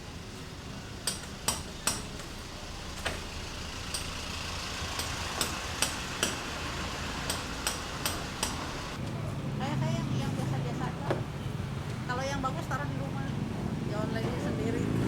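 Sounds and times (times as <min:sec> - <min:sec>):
steady low hum: 0:00.0 - 0:09.0
hammer taps: 0:07.3 - 0:08.8.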